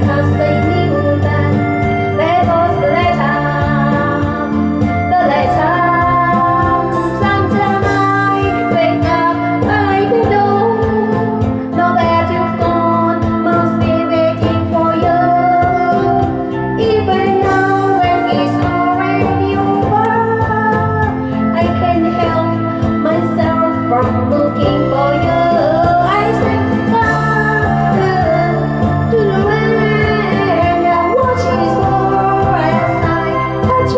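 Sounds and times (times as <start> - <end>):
backing track with steady beat: 0.0 - 33.9
woman singing pop song: 0.0 - 33.9.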